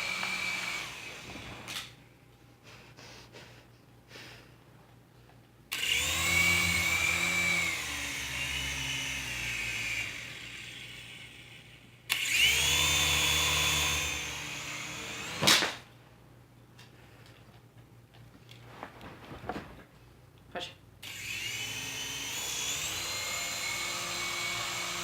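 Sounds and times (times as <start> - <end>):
toy helicopter motor whining: 0.0 - 1.9, 5.7 - 15.4, 21.0 - 25.0.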